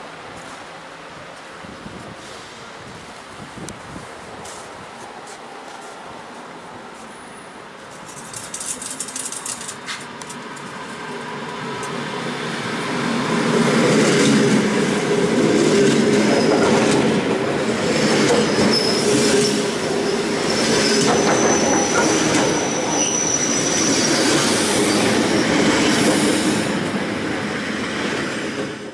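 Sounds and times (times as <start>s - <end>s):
train wheels on rails: 3.9s - 28.9s
high wheel squeals: 18.5s - 25.7s.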